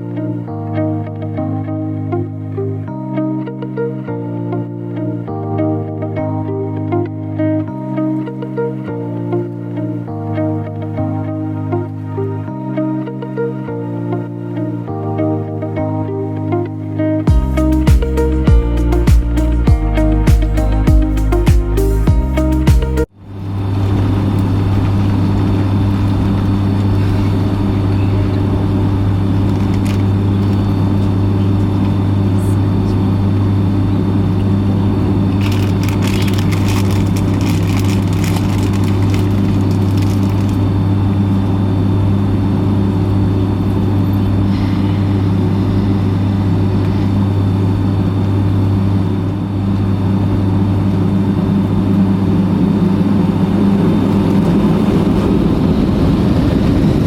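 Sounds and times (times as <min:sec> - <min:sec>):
jet engines droning in cabin: 0:39.4 - 0:57.0.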